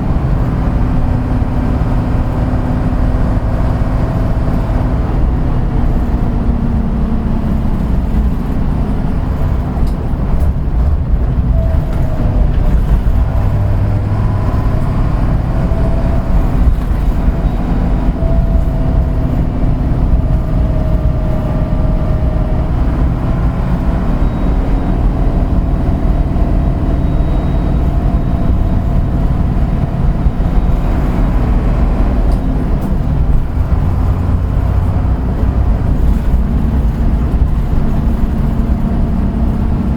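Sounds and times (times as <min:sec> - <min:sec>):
bus engine droning: 0:00.0 - 0:39.9.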